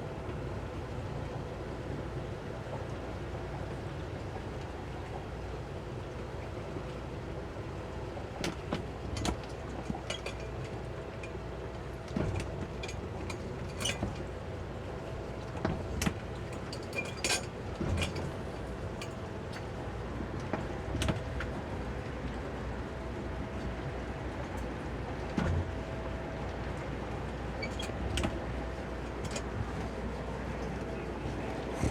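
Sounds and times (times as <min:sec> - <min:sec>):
outboard motors running: 0:07.2 - 0:31.9.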